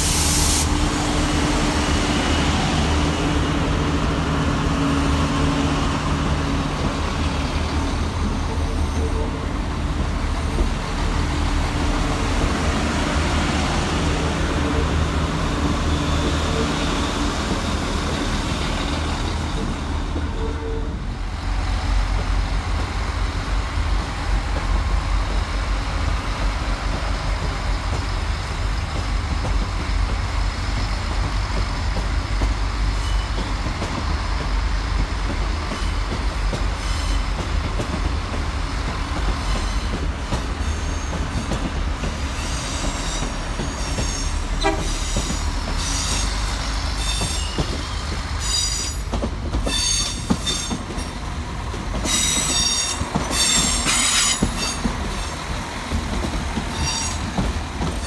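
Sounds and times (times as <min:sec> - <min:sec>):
train rumbling over track: 0:00.0 - 0:58.0
train wheel squeals: 0:30.6 - 0:33.9, 0:36.7 - 0:37.4, 0:39.3 - 0:41.7, 0:42.3 - 0:51.2, 0:52.0 - 0:55.4, 0:56.6 - 0:58.0.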